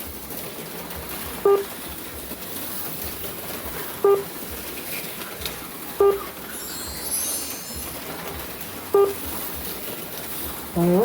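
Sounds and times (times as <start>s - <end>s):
slot cars whirring: 0.0s - 11.0s
short electronic beep: 6.0s - 6.3s, 8.9s - 9.2s.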